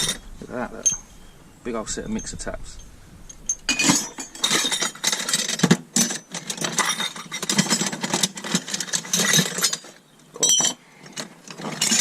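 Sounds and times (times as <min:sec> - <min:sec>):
metal scrap clattering in a box: 0:03.7 - 0:12.0.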